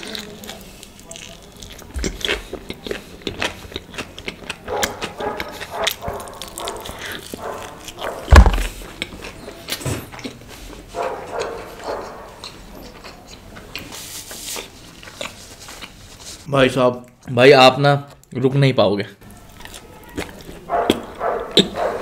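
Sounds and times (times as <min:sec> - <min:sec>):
chewing and crunching food: 0:00.0 - 0:17.3, 0:19.2 - 0:22.0
dog barking: 0:04.7 - 0:08.3, 0:11.0 - 0:12.4, 0:20.7 - 0:22.0.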